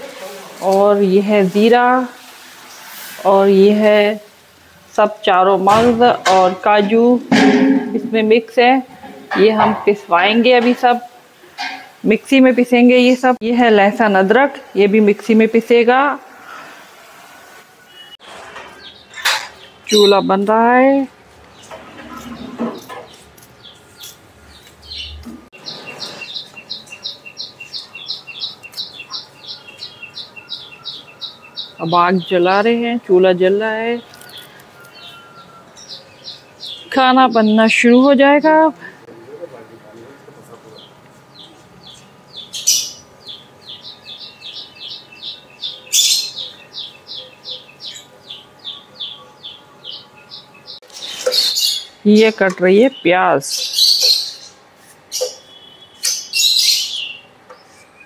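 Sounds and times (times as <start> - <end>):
bird chirping: 17.9 - 20.6, 21.5 - 33.0, 33.8 - 38.5, 40.7 - 58.0.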